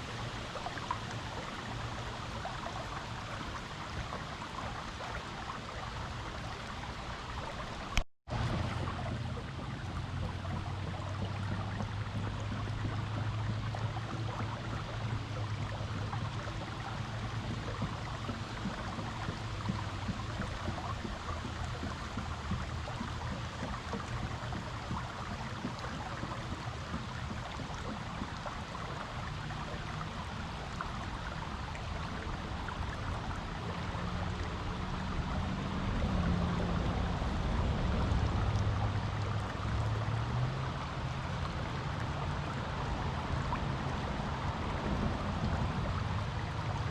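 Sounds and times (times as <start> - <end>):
creek water flowing over rocks: 0.0 - 46.9
low wavering hum: 0.0 - 46.9.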